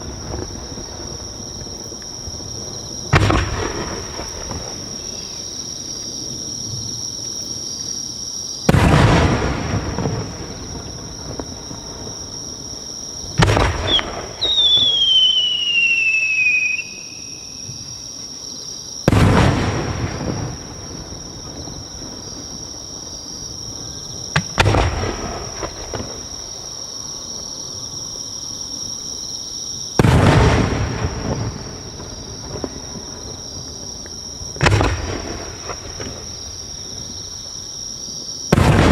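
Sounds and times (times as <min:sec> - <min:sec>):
firework shells booming: 0:00.0 - 0:05.4, 0:08.6 - 0:12.3, 0:13.3 - 0:16.9, 0:19.1 - 0:22.2, 0:24.3 - 0:26.5, 0:30.0 - 0:37.1, 0:38.5 - 0:38.9
falling firework whistle: 0:13.4 - 0:18.1.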